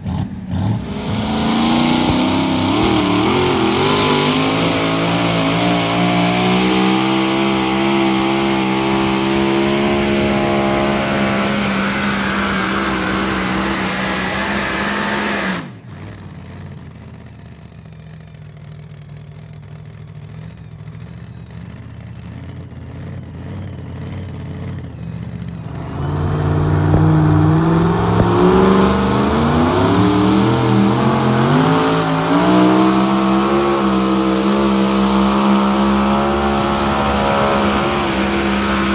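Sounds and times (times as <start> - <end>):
engine running at high revs: 0.0 - 17.8, 19.2 - 38.9.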